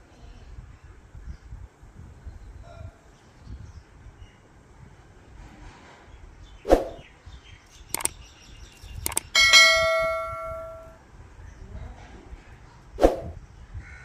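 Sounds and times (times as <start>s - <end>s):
sharp knocks and clicks: 8.0s - 8.2s, 8.9s - 10.9s
metal bell ringing: 9.4s - 11.0s.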